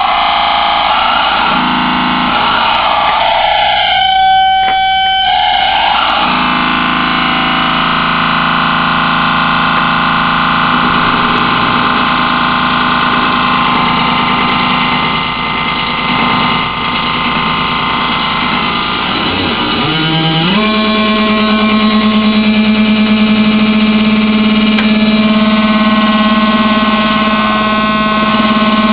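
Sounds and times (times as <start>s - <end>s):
synthesizer drone: 0.0s - 28.9s.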